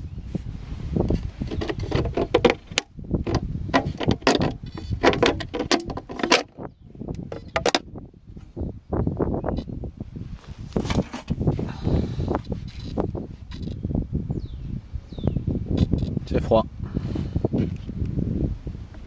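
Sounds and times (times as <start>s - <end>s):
clicks knocks and rattles: 1.4s - 6.6s, 7.2s - 7.9s.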